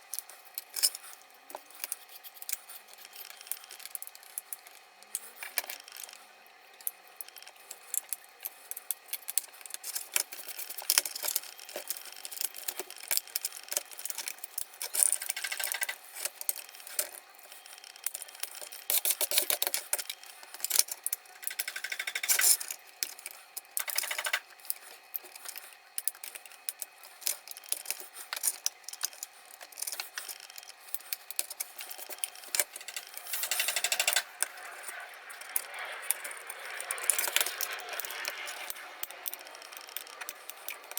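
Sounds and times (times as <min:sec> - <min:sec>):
small parts clicking and rattling: 0:00.0 - 0:40.9.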